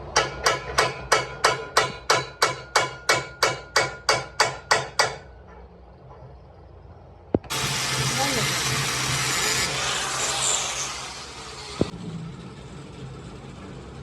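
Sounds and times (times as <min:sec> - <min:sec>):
hammer striking metal: 0:00.1 - 0:05.3.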